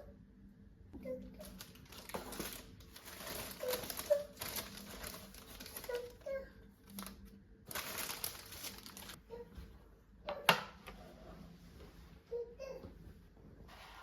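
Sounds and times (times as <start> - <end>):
handling rustles and scrapes: 1.4 - 6.2, 13.6 - 14.0.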